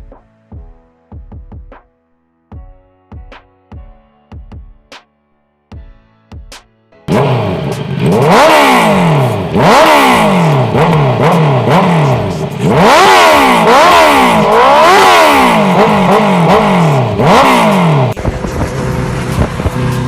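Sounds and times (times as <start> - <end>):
motorcycle engine revving: 7.1 - 20.0.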